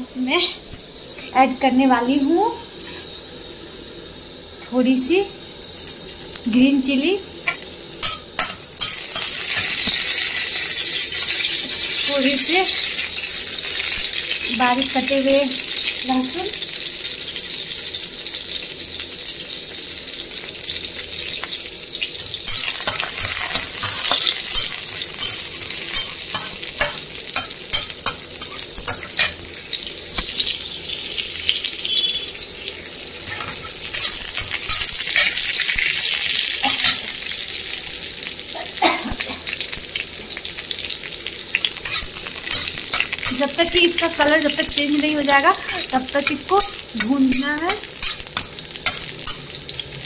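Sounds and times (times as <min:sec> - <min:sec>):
garlic sizzling in hot oil: 0:00.0 - 0:50.0
metal spatula stirring: 0:07.5 - 0:10.0, 0:22.5 - 0:29.4, 0:33.2 - 0:35.4, 0:36.6 - 0:37.1, 0:41.7 - 0:44.2, 0:45.5 - 0:49.6.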